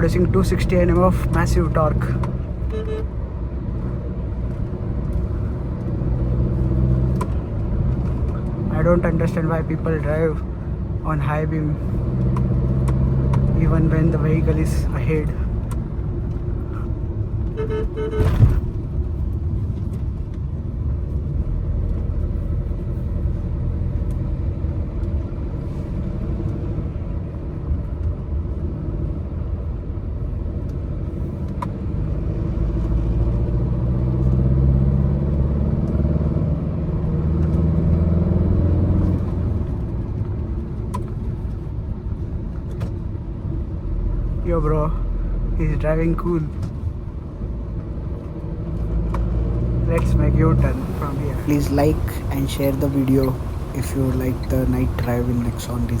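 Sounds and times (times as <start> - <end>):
road rumble: 0.0 - 56.0
diesel engine running: 49.8 - 56.0.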